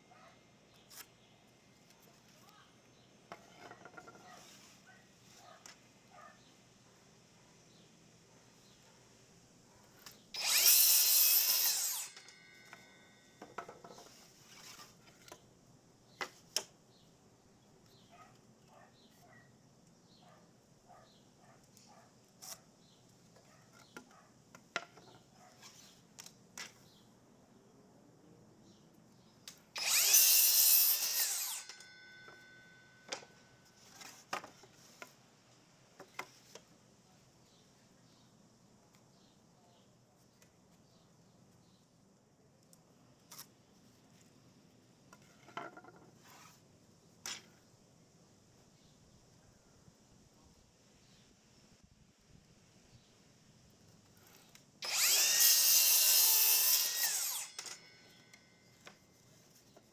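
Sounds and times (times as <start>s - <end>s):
power drill running: 10.4s - 12.2s, 29.8s - 31.8s, 54.8s - 57.9s.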